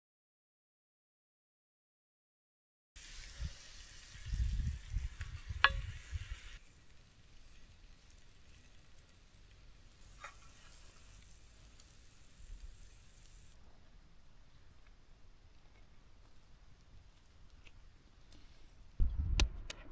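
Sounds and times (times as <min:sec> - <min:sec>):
food sizzling in a pan: 0:03.0 - 0:13.6.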